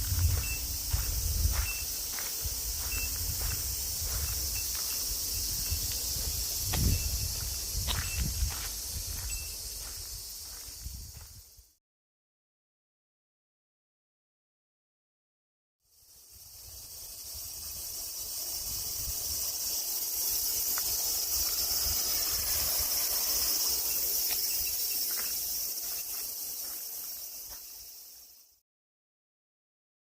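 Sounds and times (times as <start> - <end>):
insects shrilling: 0.0 - 11.6, 15.9 - 28.6
wind rumble on microphone: 0.0 - 11.6, 16.6 - 19.7, 20.4 - 24.8.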